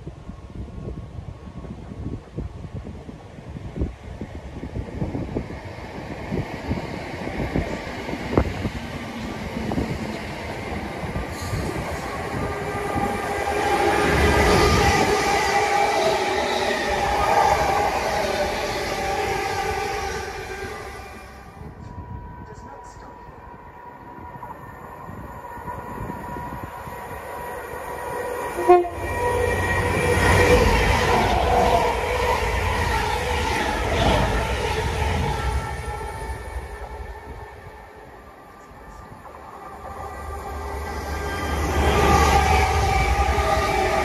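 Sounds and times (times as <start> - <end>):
train rumble and rail noise: 0.0 - 44.0
train horn toot: 12.4 - 23.2, 28.3 - 33.4, 40.3 - 44.0.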